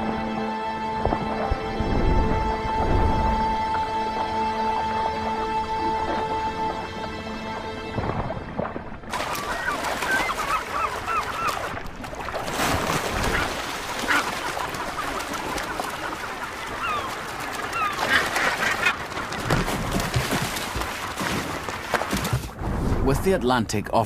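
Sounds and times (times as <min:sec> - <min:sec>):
seabird colony crying: 0:09.2 - 0:12.3, 0:12.9 - 0:20.1.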